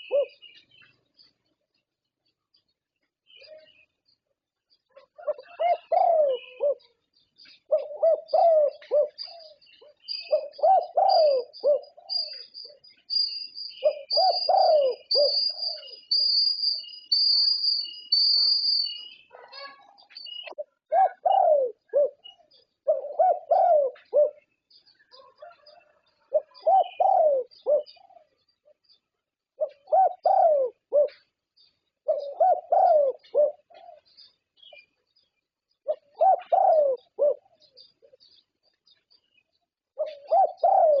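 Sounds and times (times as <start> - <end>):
dove cooing: 0.0 - 0.6, 4.9 - 28.8, 29.6 - 31.3, 32.0 - 34.8, 35.8 - 38.3, 40.0 - 41.0.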